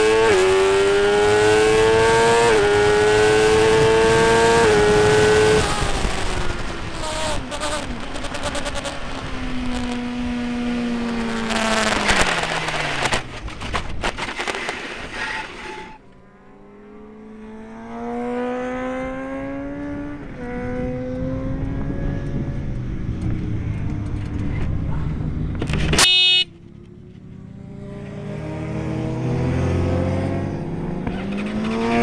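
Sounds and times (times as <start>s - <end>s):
motorcycle engine revving: 0.0s - 32.0s
heavy wind noise: 2.5s - 8.2s, 19.6s - 26.0s.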